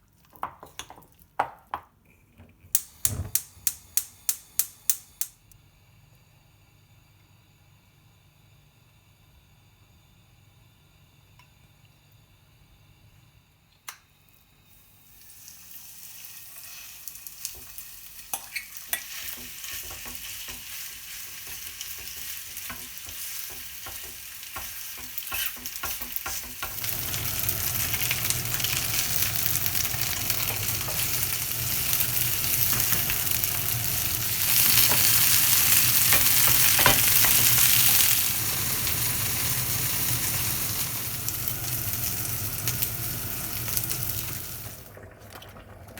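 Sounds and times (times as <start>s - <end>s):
chicken sizzling in frying pan: 14.8s - 44.9s.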